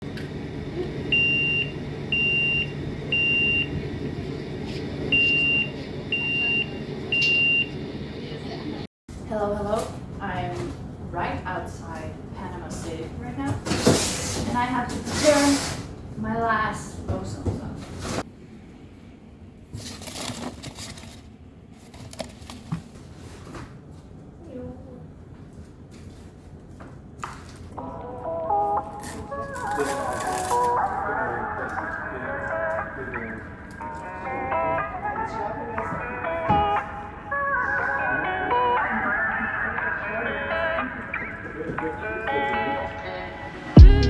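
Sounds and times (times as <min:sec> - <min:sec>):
low background hum: 0:00.0 - 0:44.0
electronic alarm beeping: 0:01.1 - 0:03.8, 0:05.1 - 0:07.8
rustling and crinkling handling: 0:19.6 - 0:24.1, 0:29.0 - 0:30.9.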